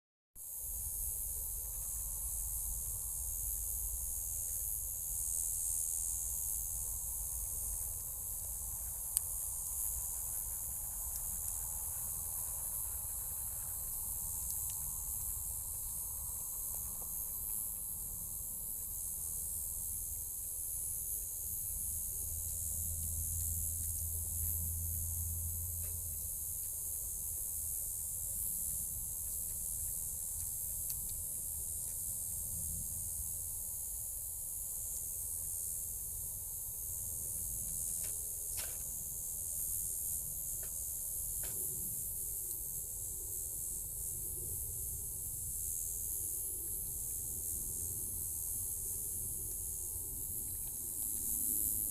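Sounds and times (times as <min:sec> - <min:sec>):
wood fire hissing: 0:00.8 - 0:18.2
low outdoor rumble: 0:21.8 - 0:26.6.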